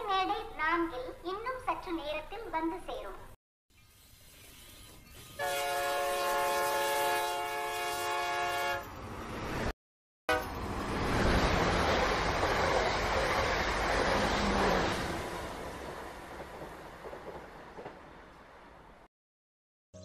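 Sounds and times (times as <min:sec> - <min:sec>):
train running on rails: 0:05.2 - 0:09.7, 0:10.3 - 0:19.0.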